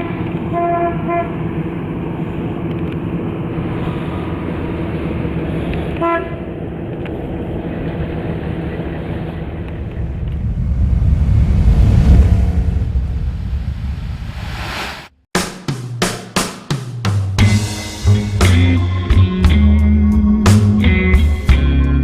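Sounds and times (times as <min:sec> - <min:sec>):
car engine and road noise: 0:00.0 - 0:15.2.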